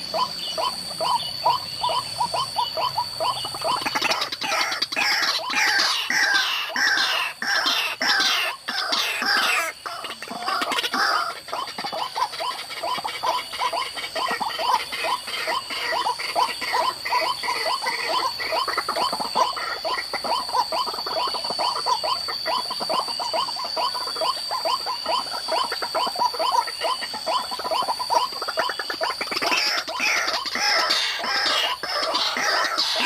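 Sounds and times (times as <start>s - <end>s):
waterhen calling: 0.0s - 33.0s.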